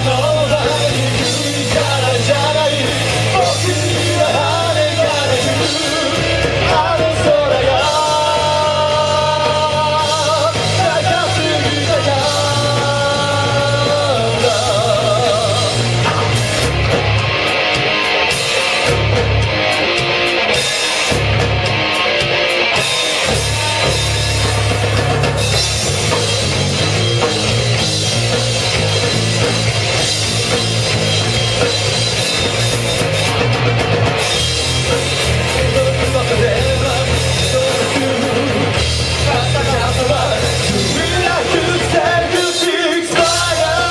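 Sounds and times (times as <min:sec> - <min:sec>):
person singing: 0:00.0 - 0:16.4, 0:35.5 - 0:43.9
live rock band playing: 0:00.0 - 0:43.9.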